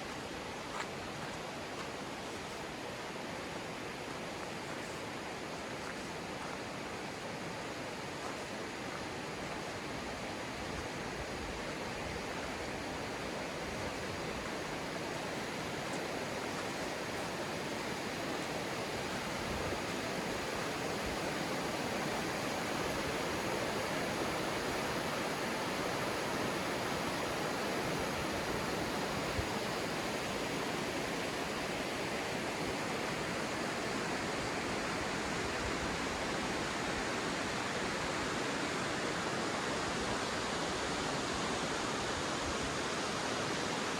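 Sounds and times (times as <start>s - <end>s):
river rushing: 0.0s - 43.9s.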